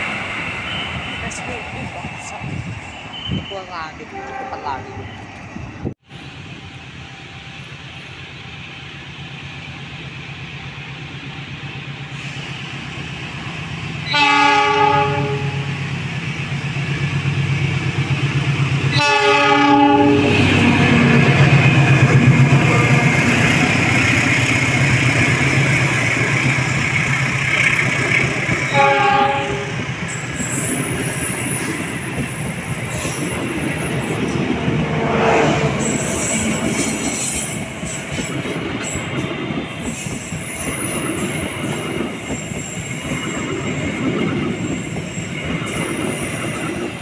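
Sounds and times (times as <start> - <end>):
train wheels rumbling on rails: 0.0 - 47.0
train horn blasts: 3.1 - 4.9, 14.1 - 15.8, 18.9 - 21.1, 28.7 - 29.8, 34.8 - 36.5.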